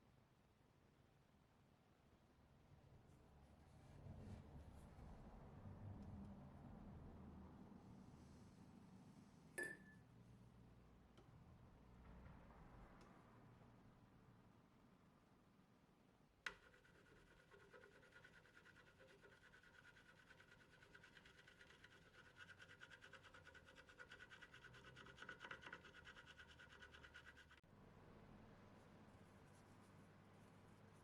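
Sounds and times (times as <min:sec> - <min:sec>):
fast scratching strokes: 0:16.6 - 0:27.6.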